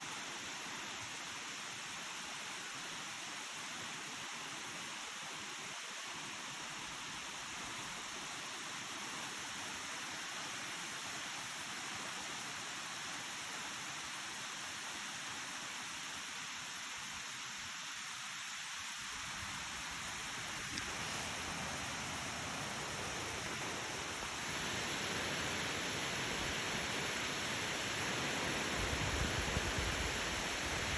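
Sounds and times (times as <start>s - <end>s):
waterfall rushing: 18.2s - 30.9s.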